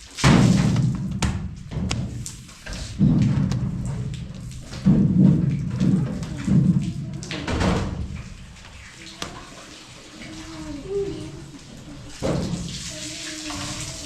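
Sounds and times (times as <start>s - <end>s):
water splashing: 0.0s - 14.0s.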